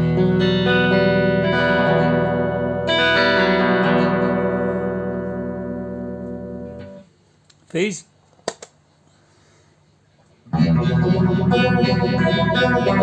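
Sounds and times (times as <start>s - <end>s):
clean electric guitar chords: 0.0s - 7.1s, 10.5s - 13.0s.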